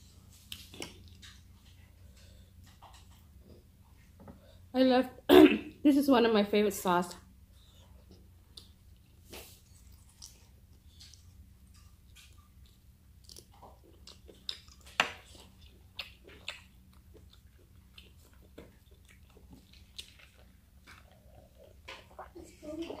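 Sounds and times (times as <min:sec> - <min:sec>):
person chewing: 0:07.6 - 0:22.4.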